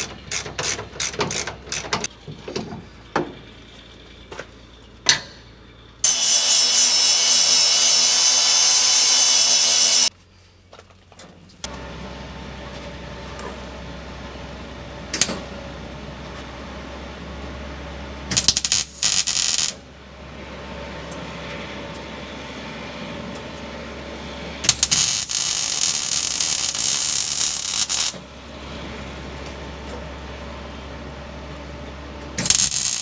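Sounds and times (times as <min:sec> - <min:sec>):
welding arc crackling: 0:06.0 - 0:10.1, 0:18.4 - 0:19.8, 0:24.7 - 0:28.2, 0:32.4 - 0:33.0.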